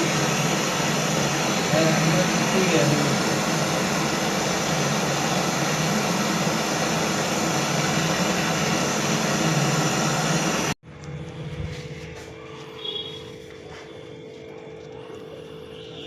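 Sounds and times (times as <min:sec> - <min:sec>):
loud mechanical rushing noise: 0:00.0 - 0:10.8.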